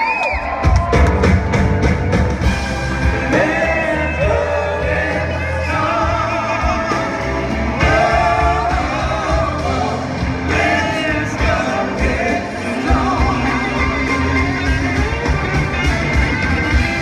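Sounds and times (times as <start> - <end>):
blues-rock band playing: 0.6 - 17.0
person singing: 3.2 - 14.5.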